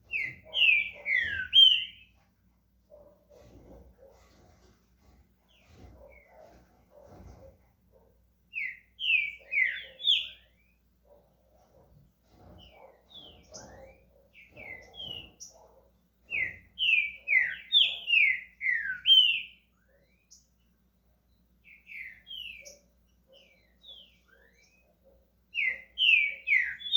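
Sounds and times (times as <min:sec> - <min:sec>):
bird singing whistles: 0:00.1 - 0:02.1, 0:08.6 - 0:10.5, 0:16.3 - 0:19.6, 0:25.6 - 0:26.9.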